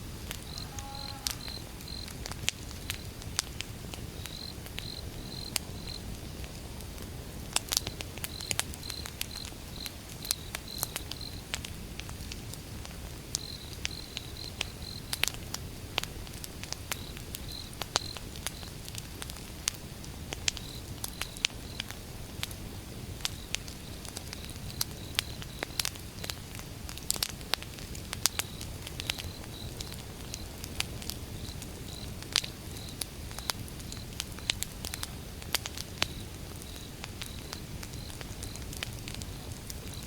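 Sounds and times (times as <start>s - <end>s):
campfire crackling and popping: 0.0s - 40.0s
cricket chirping: 0.3s - 3.2s, 4.2s - 6.2s, 28.3s - 30.6s, 31.3s - 35.2s, 36.0s - 40.0s.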